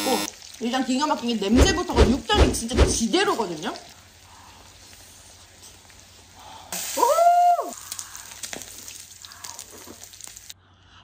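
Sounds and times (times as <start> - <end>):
person's voice: 0.0 - 3.8
meat sizzling on a grill: 0.0 - 10.6.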